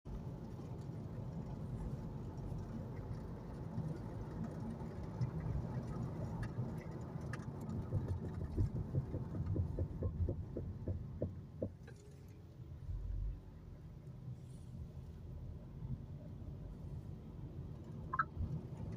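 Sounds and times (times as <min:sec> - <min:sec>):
low rumble of car rolling: 0:00.0 - 0:18.9
rhythmic car brake noise: 0:07.8 - 0:12.2.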